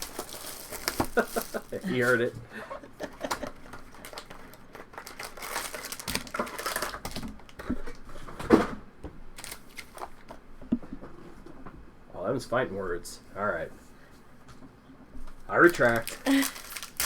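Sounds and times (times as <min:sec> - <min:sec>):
wrappers crinkling: 0:00.0 - 0:02.3, 0:03.2 - 0:07.6, 0:09.4 - 0:10.2, 0:15.5 - 0:17.0
cards being shuffled: 0:15.6 - 0:17.0.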